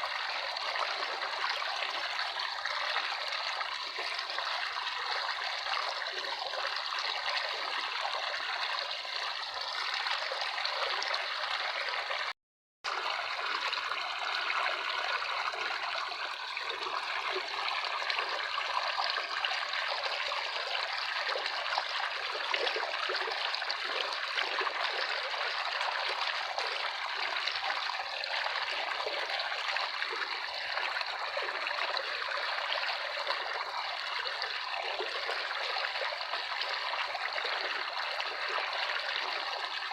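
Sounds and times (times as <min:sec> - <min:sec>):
water trickling: 0:12.9 - 0:39.9.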